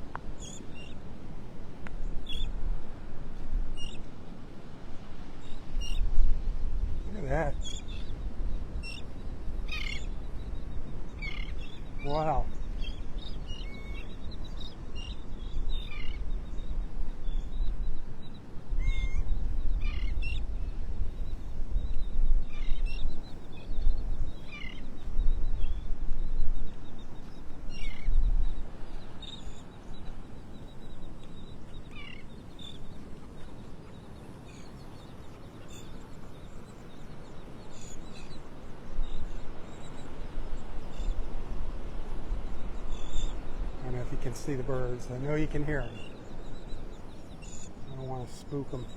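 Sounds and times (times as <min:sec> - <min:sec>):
birds calling: 0:00.0 - 0:48.9.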